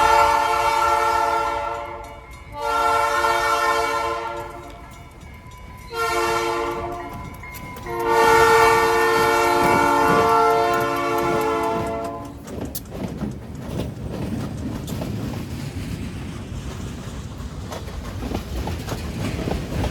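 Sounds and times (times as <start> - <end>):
locomotive air horn blasts: 0.0 - 4.7, 5.9 - 7.2, 7.8 - 12.4
train rumble and rail clatter: 0.0 - 19.9.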